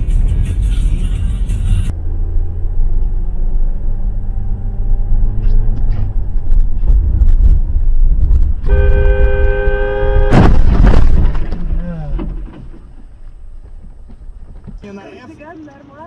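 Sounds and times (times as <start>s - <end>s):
car rumbling on road: 0.0s - 16.0s
car horn held: 8.7s - 10.6s.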